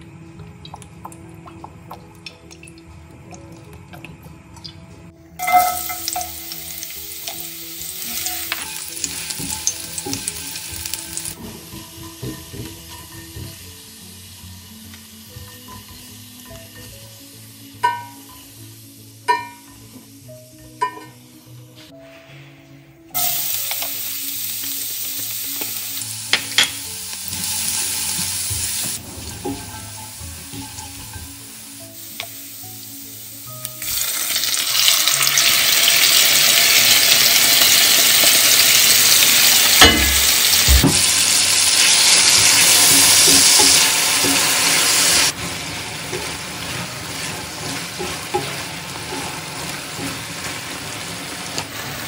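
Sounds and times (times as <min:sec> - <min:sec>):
meat sizzling loudly: 0:05.4 - 0:19.2, 0:23.2 - 0:52.0
garlic sizzling in a pan: 0:05.4 - 0:21.4, 0:23.2 - 0:52.0
spoon knocking against a pan: 0:11.4 - 0:13.6, 0:17.8 - 0:18.2.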